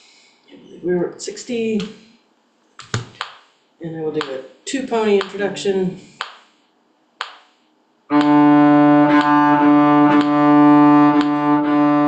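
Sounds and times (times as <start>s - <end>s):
cello bowing low note: 8.1s - 12.0s.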